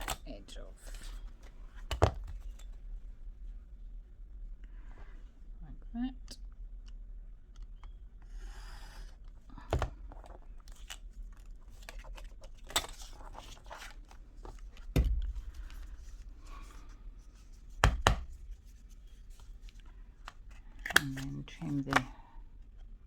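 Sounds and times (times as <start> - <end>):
sharp knocks: 14.9 - 15.8.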